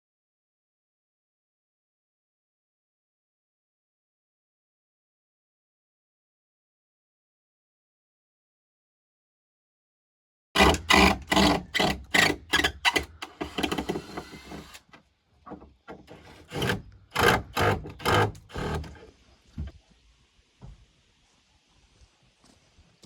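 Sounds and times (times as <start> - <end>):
hand saw cutting wood: 10.6 - 14.9, 16.1 - 19.1.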